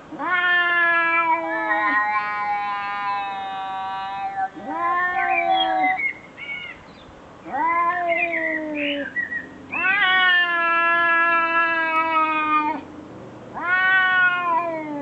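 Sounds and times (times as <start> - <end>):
animal wailing: 0.2 - 6.0, 9.7 - 12.8.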